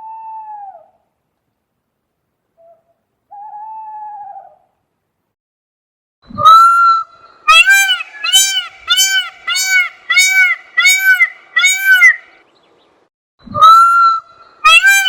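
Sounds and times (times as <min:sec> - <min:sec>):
animal honking: 0:07.5 - 0:12.3, 0:14.7 - 0:15.0.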